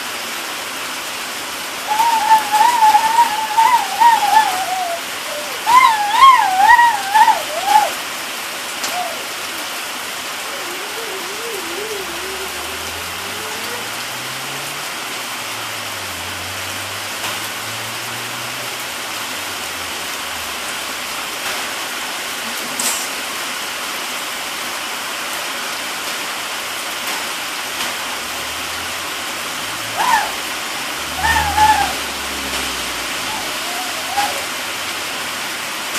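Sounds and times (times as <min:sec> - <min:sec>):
steady rain falling: 0:00.0 - 0:35.9
young child's voice: 0:10.4 - 0:14.0.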